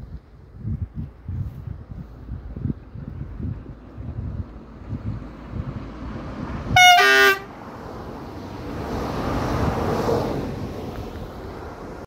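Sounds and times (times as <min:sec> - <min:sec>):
two-tone train horn: 0:06.8 - 0:07.5.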